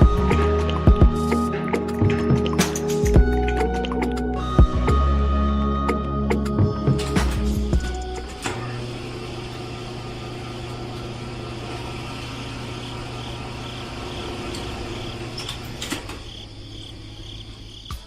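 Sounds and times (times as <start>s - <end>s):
small electric motor humming: 7.8s - 15.4s.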